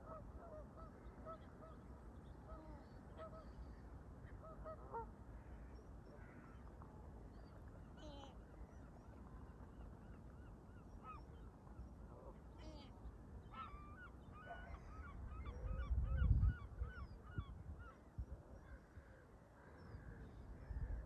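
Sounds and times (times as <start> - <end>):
wind rumbling on microphone: 14.8 - 19.0, 20.4 - 21.0.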